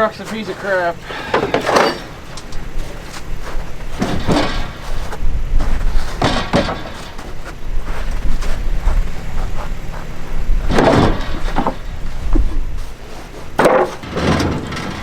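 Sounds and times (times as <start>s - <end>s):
loud clunks: 0.0s - 15.0s
truck engine running: 0.0s - 15.0s.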